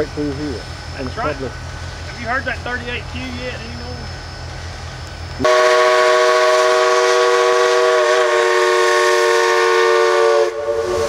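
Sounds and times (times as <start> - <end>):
steam hissing: 0.0 - 11.0
steam whistle blowing: 5.4 - 11.0.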